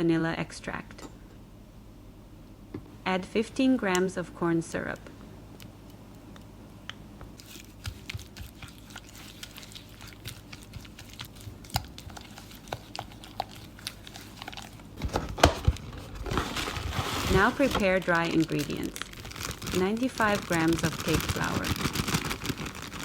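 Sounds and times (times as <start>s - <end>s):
sticky wet mixing: 7.2s - 23.0s
crinkling: 7.4s - 23.0s.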